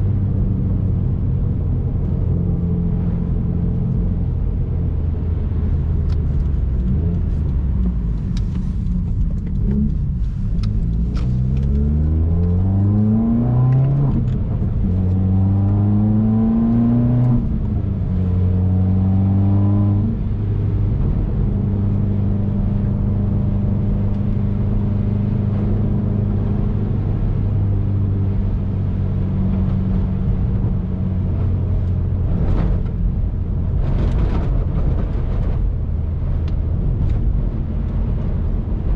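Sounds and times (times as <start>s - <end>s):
car engine accelerating through gears: 0.0s - 38.9s.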